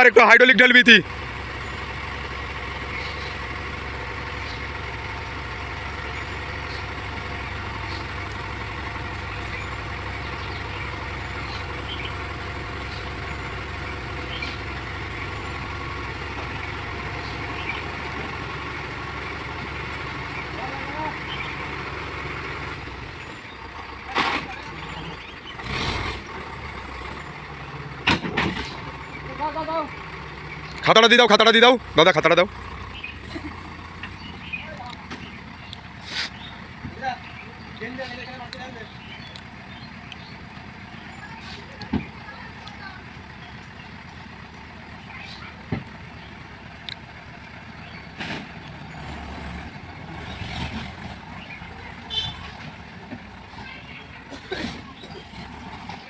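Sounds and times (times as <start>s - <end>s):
earthmoving machinery diesel engines: 0.0s - 56.0s
short sharp hiss: 36.0s - 36.4s.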